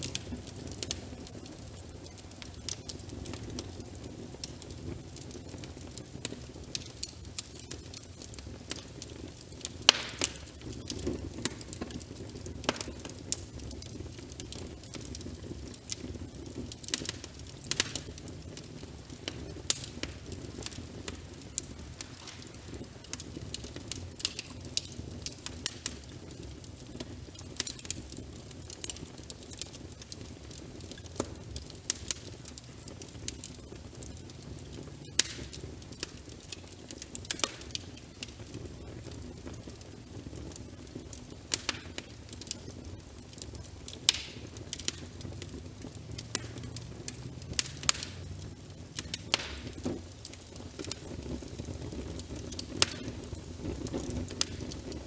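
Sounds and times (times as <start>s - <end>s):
wood fire crackling: 0.0s - 55.0s
rain rushing: 44.0s - 55.0s.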